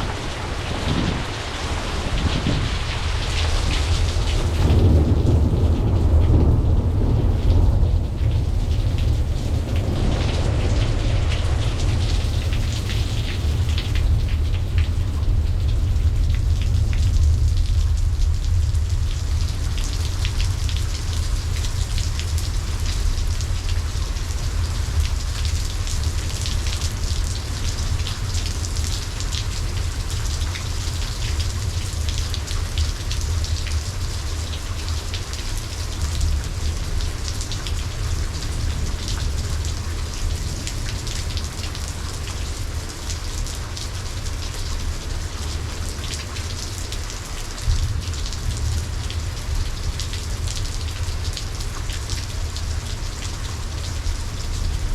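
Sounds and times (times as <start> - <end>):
deep low rumble: 0.0 - 34.0
rain falling: 0.0 - 54.9.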